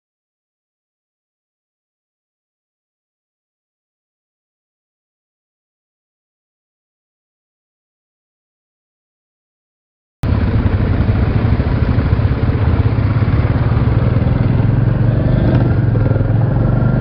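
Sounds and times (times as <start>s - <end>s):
motorcycle engine running: 10.2s - 17.0s.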